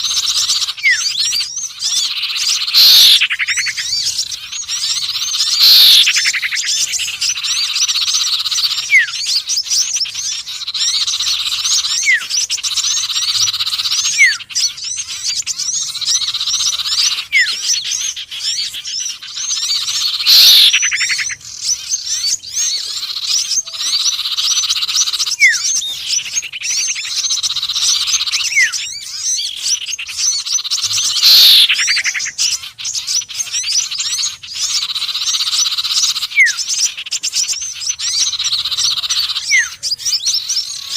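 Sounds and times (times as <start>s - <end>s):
high songbird chirping: 0.0s - 40.9s
loud falling bird call: 0.0s - 40.9s
short rising whistles: 2.7s - 3.2s, 5.5s - 6.2s, 20.2s - 20.8s.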